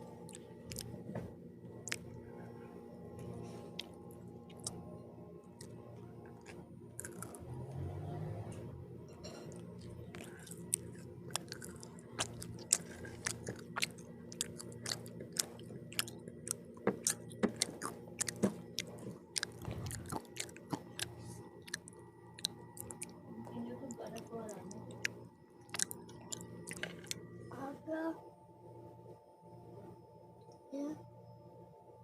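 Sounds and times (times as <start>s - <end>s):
chewing food: 0.2s - 2.2s, 3.2s - 7.9s, 9.3s - 27.3s
wet mouth clicks: 1.8s - 2.0s, 3.8s - 4.8s, 6.4s - 7.4s, 9.8s - 21.1s, 21.7s - 23.2s, 24.5s - 27.2s.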